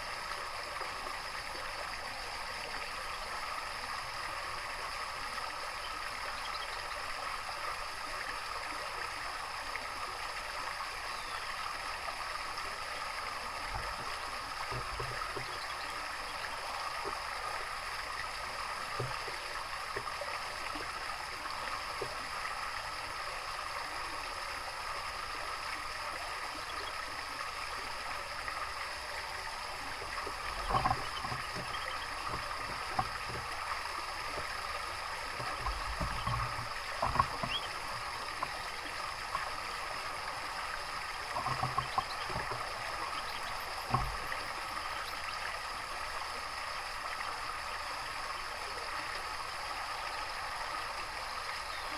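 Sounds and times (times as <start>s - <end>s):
running water trickling: 0.0s - 51.9s
soft knocks and splashes: 13.6s - 15.9s, 18.9s - 21.0s, 29.9s - 39.7s, 41.2s - 44.6s.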